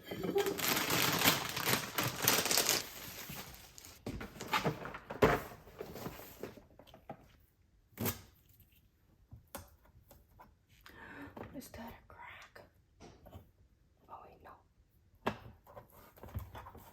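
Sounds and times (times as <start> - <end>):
packaging rustling: 0.1 - 5.0.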